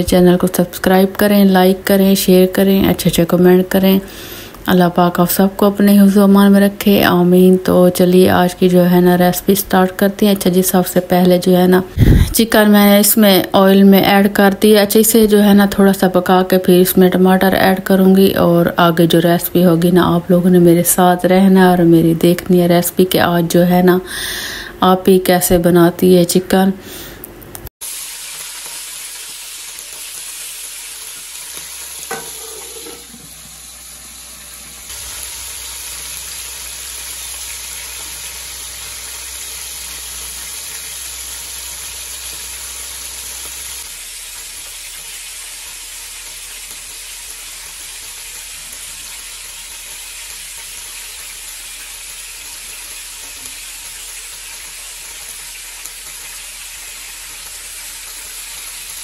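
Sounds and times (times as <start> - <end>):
chicken sizzling in hot oil: 27.8 - 59.0.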